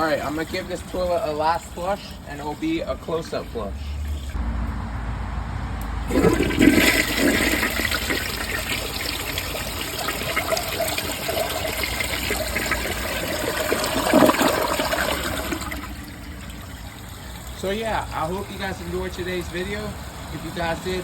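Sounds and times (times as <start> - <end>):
toilet flushing: 0.0 - 4.4, 6.1 - 21.0.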